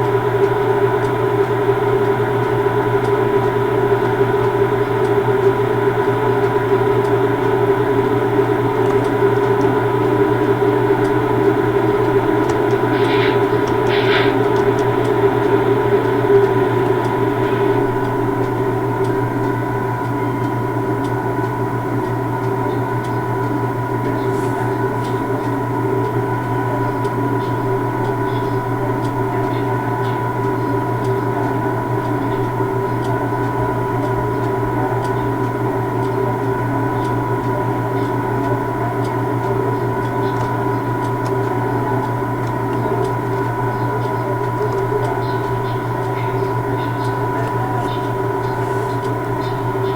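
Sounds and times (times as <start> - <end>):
constant tones: 0.0 - 49.9
hum of standing railway vehicles: 0.0 - 49.9
faint clicks: 2.4 - 20.6, 39.3 - 49.9.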